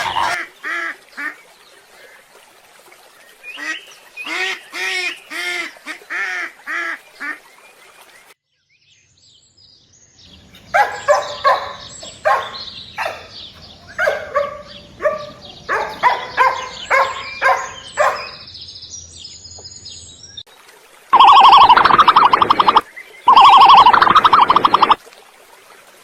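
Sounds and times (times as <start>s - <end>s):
animal calling: 0.0s - 0.4s, 10.4s - 18.5s, 21.2s - 25.0s
faint high chirps: 10.4s - 18.5s, 21.2s - 25.0s.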